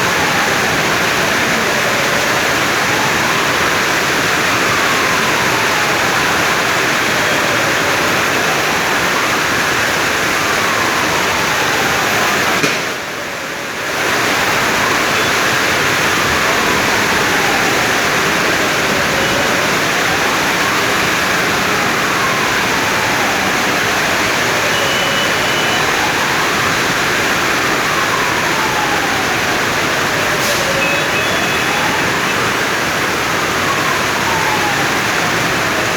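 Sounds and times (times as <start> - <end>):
heavy rain hissing: 13.8 - 34.4.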